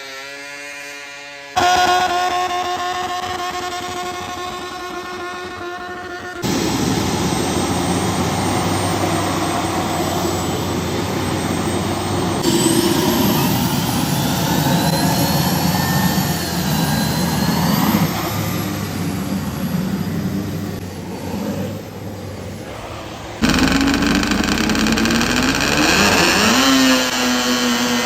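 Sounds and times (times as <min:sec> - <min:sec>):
vehicle engine running hard: 0:02.8 - 0:22.5
high whine: 0:23.2 - 0:28.0.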